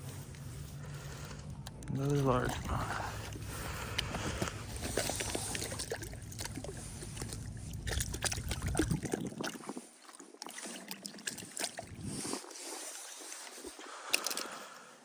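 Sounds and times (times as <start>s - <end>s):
low rumble: 0.0s - 9.8s
water sloshing and trickling: 0.0s - 15.0s.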